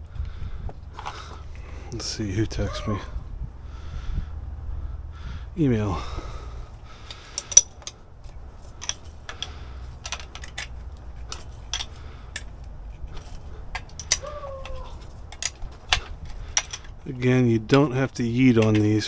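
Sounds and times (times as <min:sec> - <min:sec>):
metal hardware clinking: 0:05.6 - 0:19.0.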